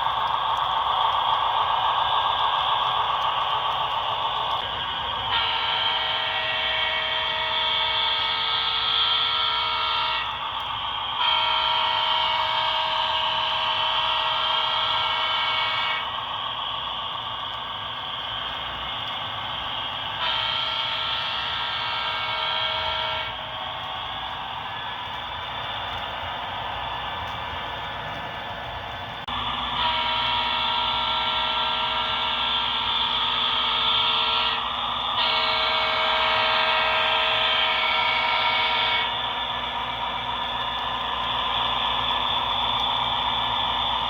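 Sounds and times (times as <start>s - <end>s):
model locomotive air horn: 4.5s - 16.3s, 18.2s - 23.6s, 29.2s - 44.0s.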